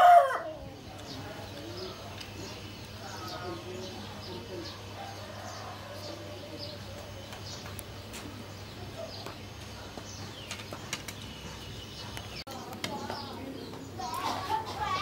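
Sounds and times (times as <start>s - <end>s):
small birds chirping: 0.4s - 15.0s.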